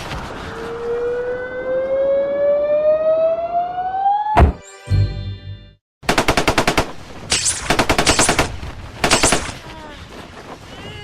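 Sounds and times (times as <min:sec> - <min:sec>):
machine-gun fire: 0:06.0 - 0:09.6.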